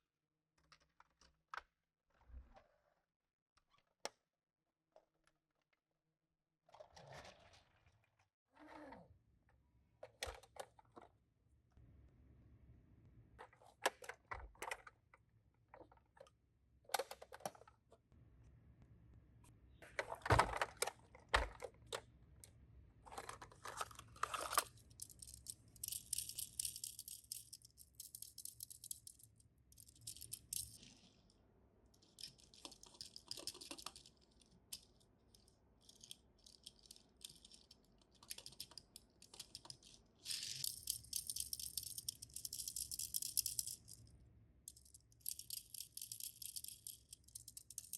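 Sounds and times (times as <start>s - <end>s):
clicks and knocks of toy cars: 0.6s - 1.8s, 10.0s - 11.1s, 13.4s - 18.0s, 19.8s - 22.1s, 23.0s - 29.2s, 32.0s - 44.0s.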